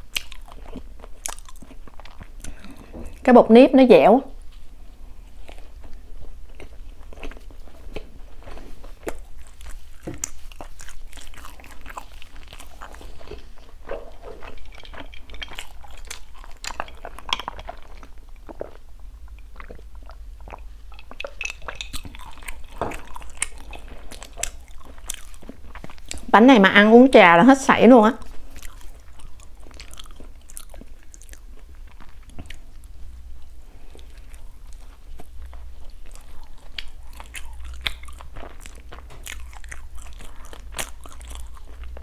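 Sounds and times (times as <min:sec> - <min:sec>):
chewing mouth clicks: 0:00.0 - 0:03.2, 0:05.4 - 0:26.3, 0:28.2 - 0:42.0.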